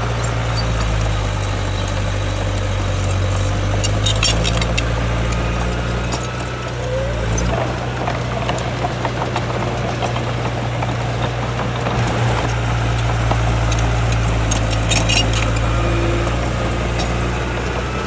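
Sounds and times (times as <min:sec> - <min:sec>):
heavy diesel engine running: 0:00.0 - 0:18.0
short metallic clicks: 0:12.0 - 0:17.2.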